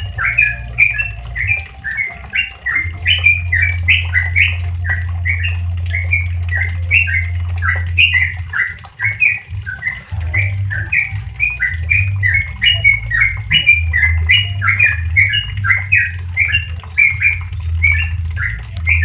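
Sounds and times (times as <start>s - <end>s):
bird singing rapid chirps: 0.0s - 19.0s
low steady hum: 0.0s - 19.0s.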